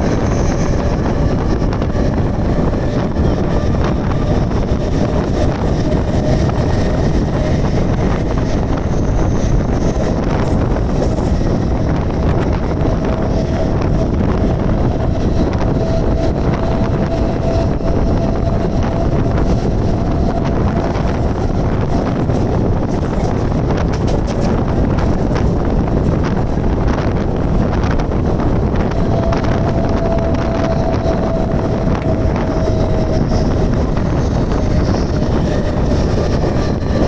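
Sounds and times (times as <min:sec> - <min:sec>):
electric train rumbling: 0:00.0 - 0:37.0
wind on microphone: 0:00.0 - 0:37.0.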